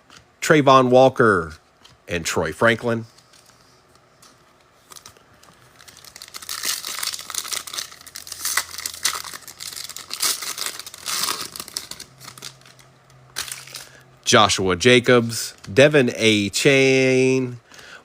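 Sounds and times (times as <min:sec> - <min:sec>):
card pack wrapper tearing and crinkling: 0:04.8 - 0:14.0.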